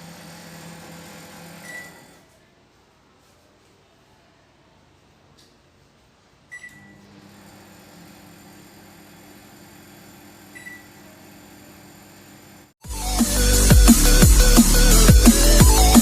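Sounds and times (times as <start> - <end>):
microwave beep: 1.6 - 2.0, 6.5 - 7.0, 10.5 - 11.1
microwave humming: 6.7 - 12.7.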